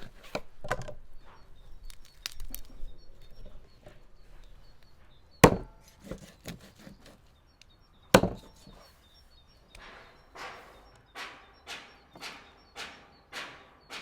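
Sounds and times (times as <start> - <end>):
blade chopping into wood: 5.4 - 7.0, 8.2 - 8.6.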